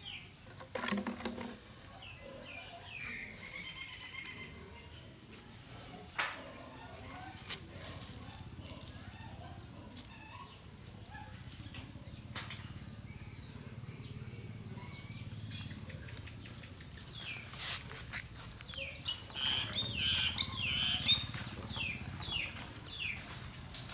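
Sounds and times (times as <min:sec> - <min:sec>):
high-pitched chirping calls: 0:18.7 - 0:23.3.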